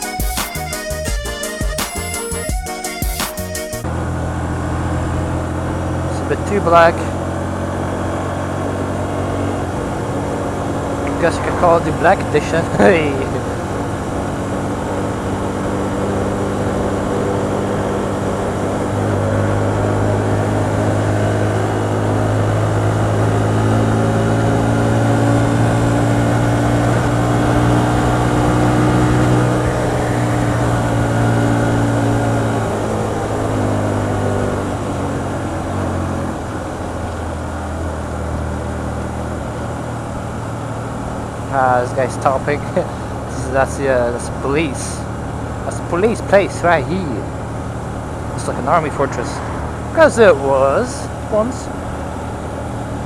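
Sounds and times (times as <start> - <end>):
motorcycle engine running: 0.0 - 53.0
wind rush: 48.0 - 52.6.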